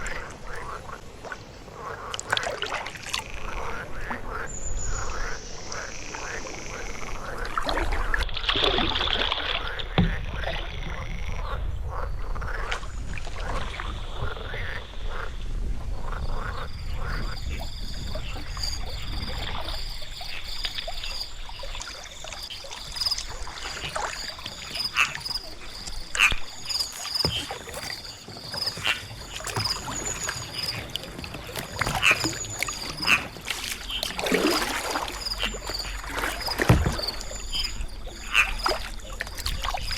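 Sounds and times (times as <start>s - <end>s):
paddle splashing in water: 0.0s - 11.1s, 12.4s - 14.8s, 18.0s - 39.9s
paddle knocks: 9.1s - 10.6s, 23.2s - 39.9s.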